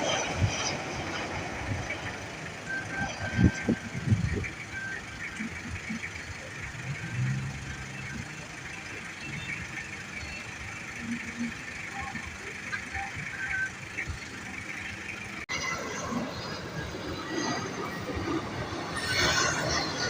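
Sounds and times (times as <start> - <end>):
vehicle noise: 0.0 - 20.0
short beeps: 2.6 - 15.1.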